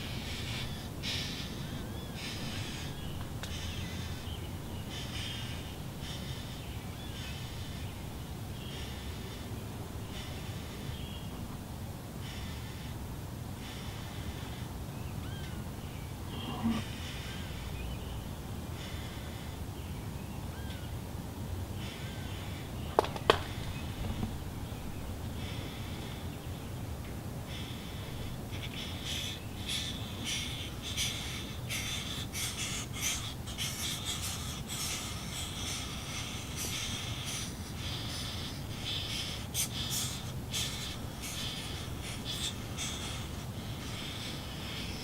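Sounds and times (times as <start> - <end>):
nestlings begging raspy hissing: 0.0 - 11.2, 12.2 - 13.0, 13.6 - 19.9, 21.7 - 24.0, 25.3 - 45.0
steady low rumble: 0.0 - 44.8
sharp knocks: 23.0 - 24.4.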